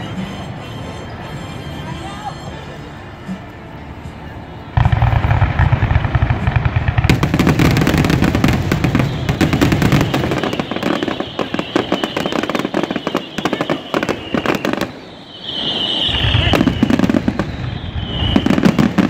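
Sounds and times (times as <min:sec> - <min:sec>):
fireworks bangs and crackling: 0:04.7 - 0:19.0.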